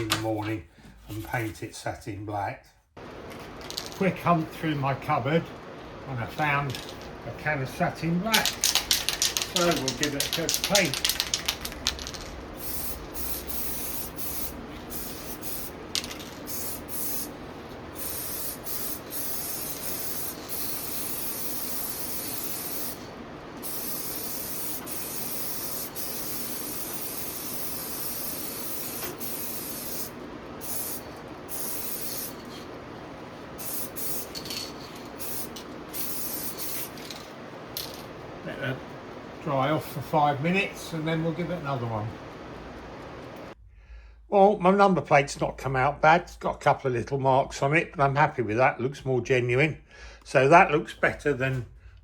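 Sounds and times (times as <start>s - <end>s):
aerosol spray can hissing: 8.4s - 32.8s, 33.5s - 37.2s.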